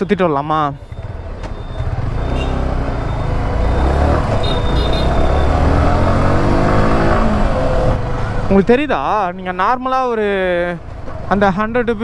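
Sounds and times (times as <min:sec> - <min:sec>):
road and wind noise: 0:00.0 - 0:12.0
motorcycle engine rumble: 0:00.8 - 0:09.4.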